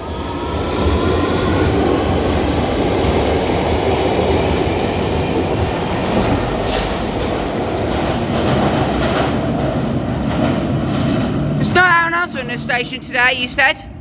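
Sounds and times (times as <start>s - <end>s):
train wheels rumbling on rails: 0.0s - 13.2s.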